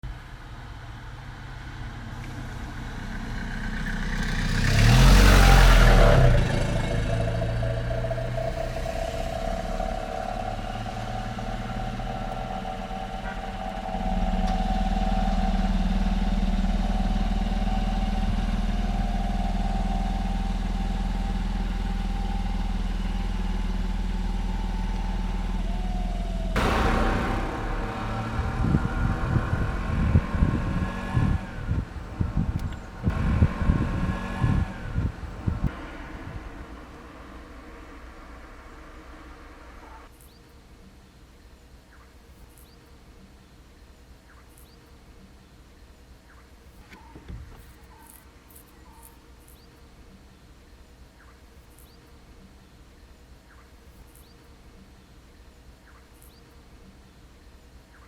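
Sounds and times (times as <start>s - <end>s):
engine running steadily: 0.1s - 40.1s
vehicle passing close: 1.2s - 40.1s.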